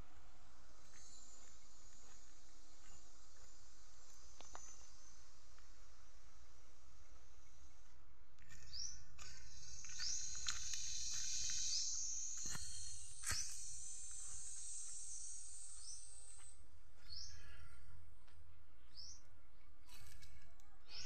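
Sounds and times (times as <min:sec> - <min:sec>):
high insect buzz: 0:08.6 - 0:17.3.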